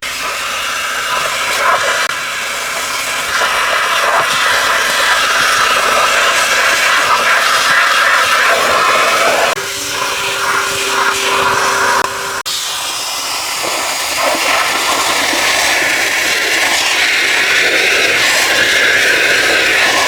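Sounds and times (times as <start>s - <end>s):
rushing hiss of cleaning equipment: 0.0s - 20.0s
motor hum: 9.3s - 12.4s.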